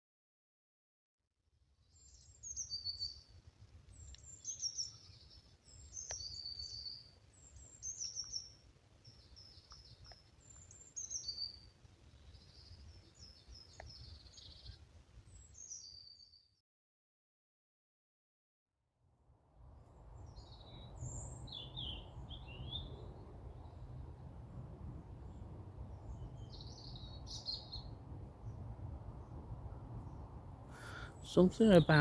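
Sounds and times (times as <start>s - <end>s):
robin singing: 9.3s - 11.7s, 20.3s - 23.2s, 26.1s - 28.6s, 30.8s - 32.0s.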